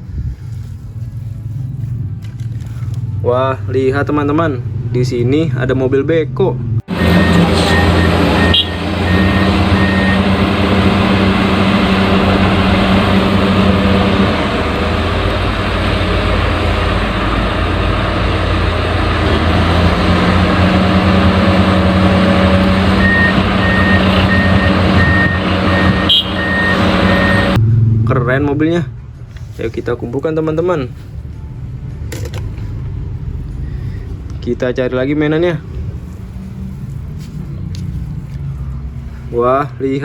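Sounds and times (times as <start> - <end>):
excavator diesel engine drone: 0.0 - 29.5
reversing alarm beeping: 6.9 - 13.0, 22.9 - 27.6.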